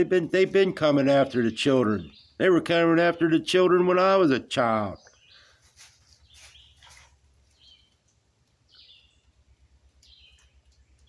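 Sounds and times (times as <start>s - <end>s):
short stepped bird chirp: 5.1s - 7.9s.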